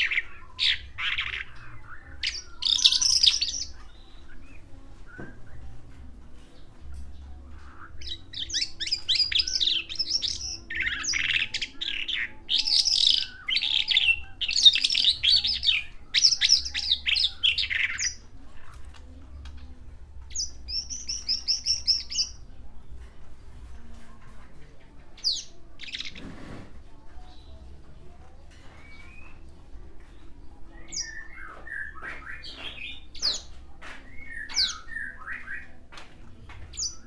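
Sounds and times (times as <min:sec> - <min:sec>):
lark singing chirps and trills: 0:00.0 - 0:04.6, 0:07.6 - 0:18.2, 0:20.3 - 0:22.4.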